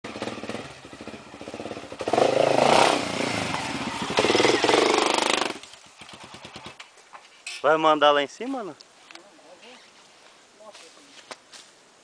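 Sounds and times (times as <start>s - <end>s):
motorcycle engine revving: 0.0s - 6.8s.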